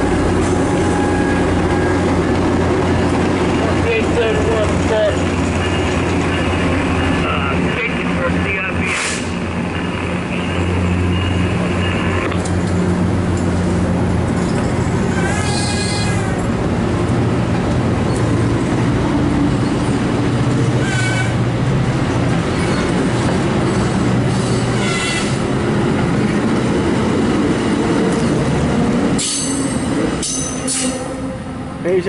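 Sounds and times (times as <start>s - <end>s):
high wheel squeals: 0.0s - 2.2s, 10.3s - 12.3s, 14.4s - 16.5s, 20.8s - 21.4s, 23.7s - 25.4s, 29.2s - 31.4s
train wheels rumbling on rails: 0.0s - 32.0s.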